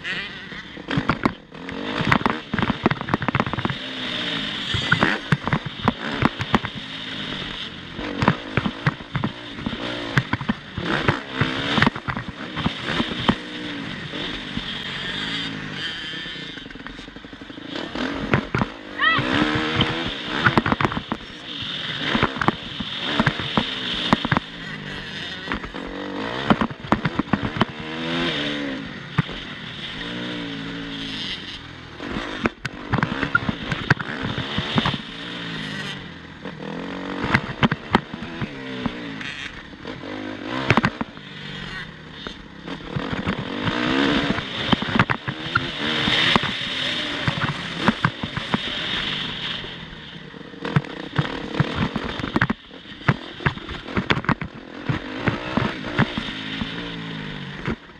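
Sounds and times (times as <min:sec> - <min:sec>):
motocross bike engine revving: 0:00.0 - 0:57.9
sharp clicks and knocks: 0:00.9 - 0:03.9, 0:04.6 - 0:13.6, 0:18.0 - 0:28.3, 0:32.0 - 0:35.2, 0:37.2 - 0:41.3, 0:42.2 - 0:48.8, 0:50.6 - 0:57.0, 0:57.6 - 0:57.9.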